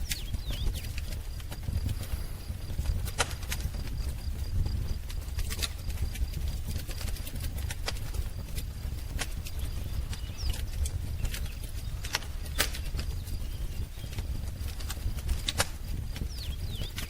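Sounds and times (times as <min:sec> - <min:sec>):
faint bird chirps: 0:00.0 - 0:01.2, 0:09.4 - 0:14.7, 0:16.1 - 0:17.0
wood fire crackling: 0:00.0 - 0:17.0.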